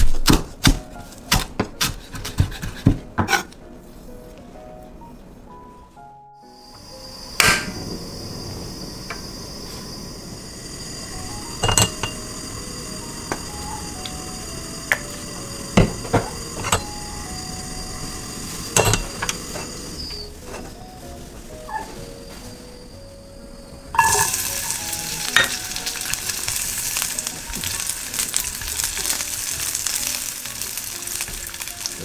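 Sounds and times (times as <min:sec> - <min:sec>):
background music: 0:00.0 - 0:32.0
cooking hiss: 0:06.4 - 0:32.0
utensils knocking on cookware: 0:11.6 - 0:12.3, 0:14.9 - 0:16.9, 0:18.7 - 0:19.8, 0:24.0 - 0:24.7.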